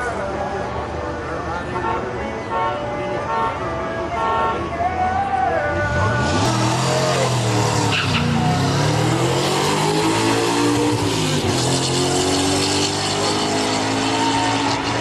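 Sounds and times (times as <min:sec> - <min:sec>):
truck engine shifting gears: 0:05.7 - 0:15.0.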